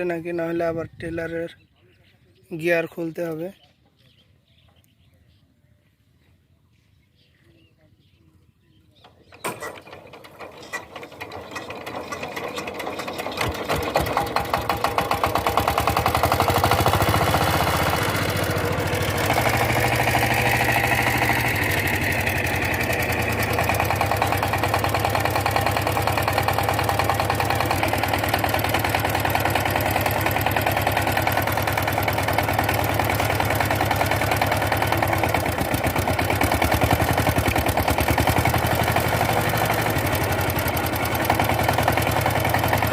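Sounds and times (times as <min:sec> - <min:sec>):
diesel tiller engine running: 0:09.0 - 0:42.9.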